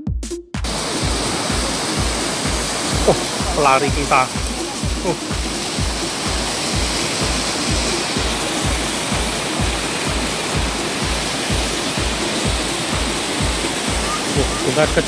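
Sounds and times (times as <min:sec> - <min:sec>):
low kick drum beat: 0:00.0 - 0:15.0
waterfall rushing: 0:00.6 - 0:15.0.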